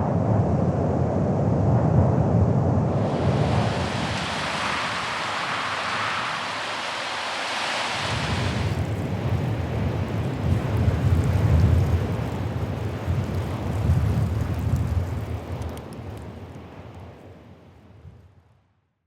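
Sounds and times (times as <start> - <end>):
wind rumbling on microphone: 0.0 - 18.4
wind rushing hiss: 2.8 - 15.6.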